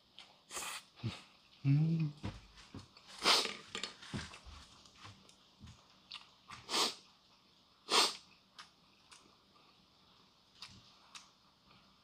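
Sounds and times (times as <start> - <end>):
person chewing noodles: 4.3 - 12.0.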